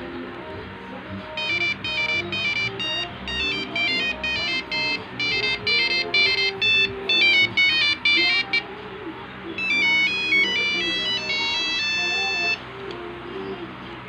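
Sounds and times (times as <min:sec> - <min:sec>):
faint background music: 0:00.0 - 0:14.0
monophonic ringtone beeping: 0:01.4 - 0:08.7, 0:09.6 - 0:12.7.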